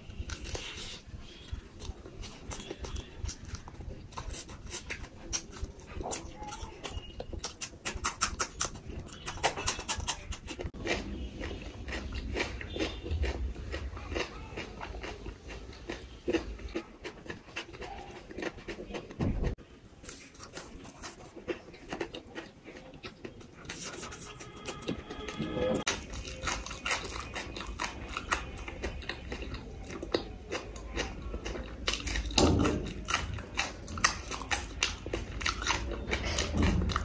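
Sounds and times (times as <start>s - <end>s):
crunchy chewing of pastry: 0.0s - 37.0s
wet mouth sounds: 4.3s - 10.8s.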